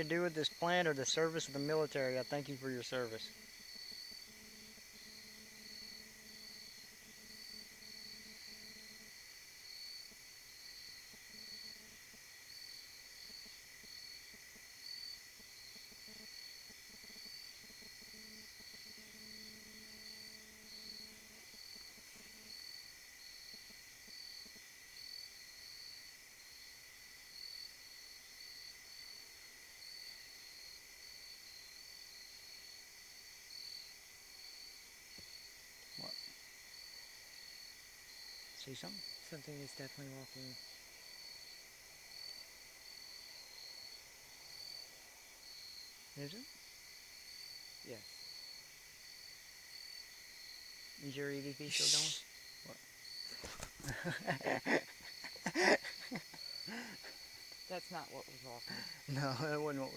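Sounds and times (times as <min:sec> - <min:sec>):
crickets chirping: 0:00.0 - 0:59.9
high insect drone: 0:00.0 - 0:59.9.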